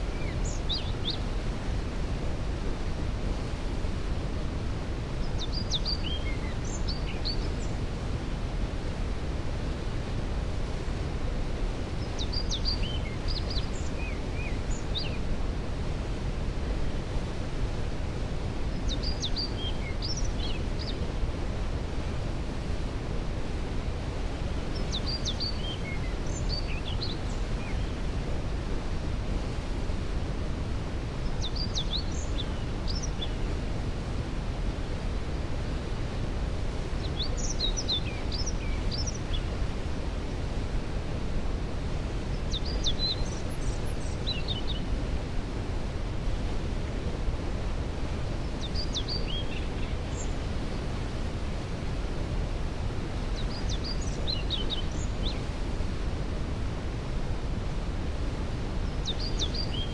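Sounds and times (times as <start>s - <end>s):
songbird singing: 0.0s - 1.3s, 5.2s - 7.8s, 11.8s - 15.3s, 18.7s - 21.1s, 24.6s - 28.0s, 31.2s - 33.5s, 36.9s - 39.6s, 42.1s - 45.0s, 48.4s - 51.0s, 53.2s - 55.5s, 58.8s - 59.9s.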